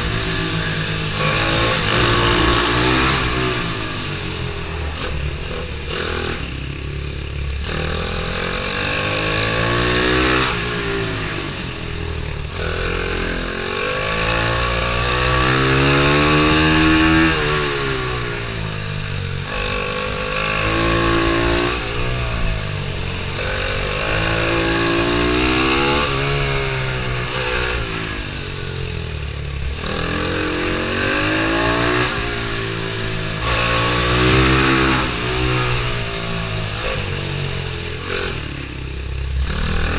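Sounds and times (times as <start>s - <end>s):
small motorbike engine revving: 0.0s - 39.9s.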